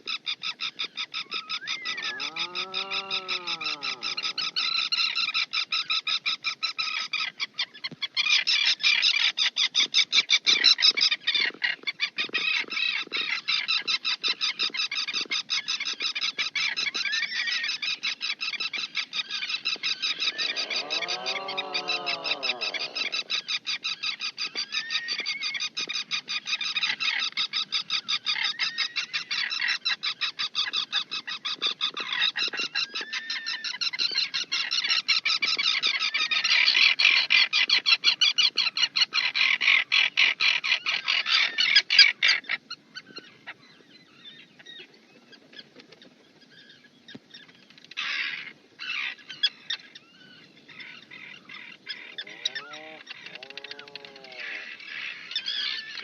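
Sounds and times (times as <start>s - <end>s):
short bird calls: 0.1s - 5.7s, 17.0s - 25.7s, 47.4s - 56.0s
low rising and falling bird calls: 0.4s - 5.7s, 16.6s - 25.8s, 48.2s - 56.0s
bird chattering: 1.2s - 5.1s, 19.3s - 24.2s, 51.8s - 56.0s.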